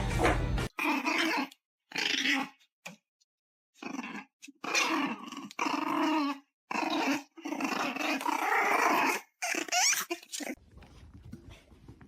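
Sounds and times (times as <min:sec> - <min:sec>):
dog growling: 0:00.7 - 0:02.5, 0:03.8 - 0:10.6.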